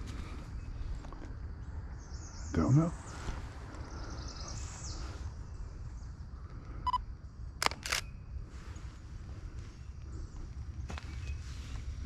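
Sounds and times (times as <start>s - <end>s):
birds or insects chirping: 0.0s - 12.0s
camera clicks: 7.6s - 8.1s.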